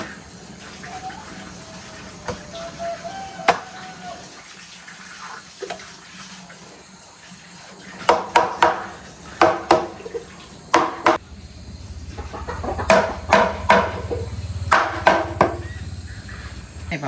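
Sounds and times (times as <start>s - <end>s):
hammer knocking on wood frame: 8.1s - 10.0s, 10.8s - 11.2s, 12.8s - 15.6s.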